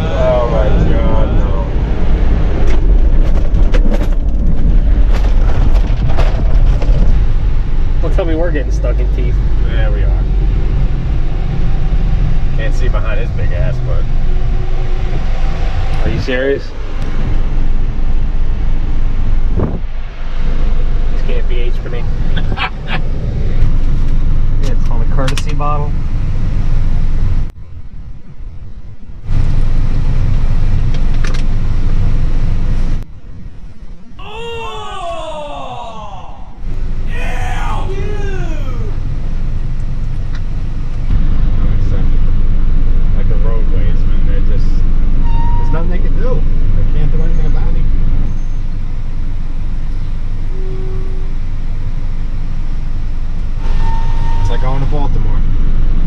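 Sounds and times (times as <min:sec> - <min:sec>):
truck engine and road rumble: 0:00.0 - 0:56.0
faint tone: 0:50.4 - 0:51.5.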